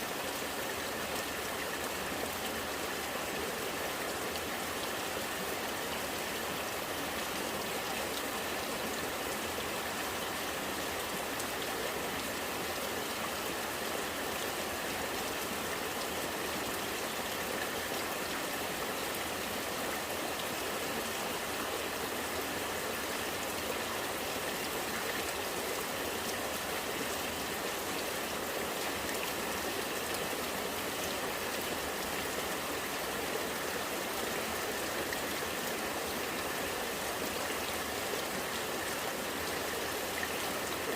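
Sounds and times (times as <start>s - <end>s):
rain falling: 0.0s - 40.9s
rainwater running and gurgling: 0.0s - 40.9s.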